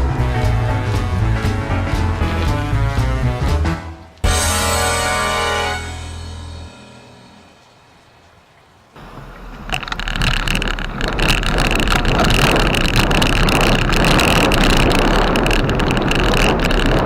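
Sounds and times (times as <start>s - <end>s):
mountain bike rolling and rattling: 7.6s - 17.0s
wind on microphone: 9.0s - 17.0s.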